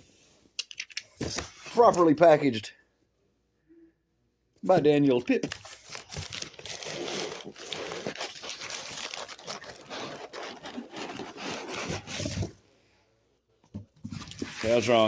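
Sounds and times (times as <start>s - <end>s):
cardboard box and paper crinkling: 5.4s - 12.5s, 14.0s - 15.0s.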